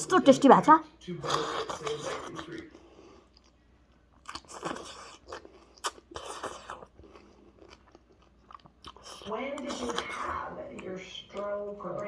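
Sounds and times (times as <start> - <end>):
person chewing food: 1.1 - 12.0.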